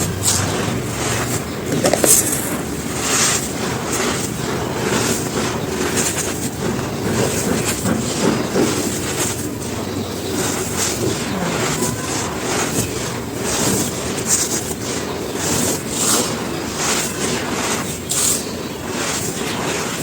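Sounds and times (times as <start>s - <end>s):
charcoal crumbling and crunching: 0.0s - 7.9s.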